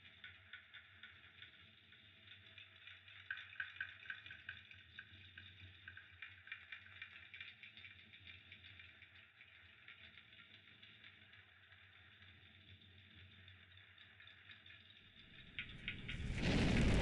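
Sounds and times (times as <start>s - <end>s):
fireplace fire crackling: 13.2s - 17.0s.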